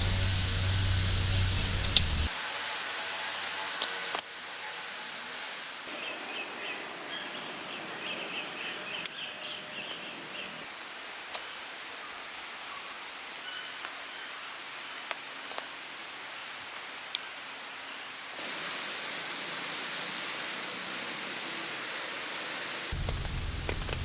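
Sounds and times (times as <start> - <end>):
faint chirping: 0.0 - 2.3, 22.9 - 24.0
rain hiss: 0.0 - 2.3, 18.4 - 24.0
sharp taps: 22.9 - 24.0.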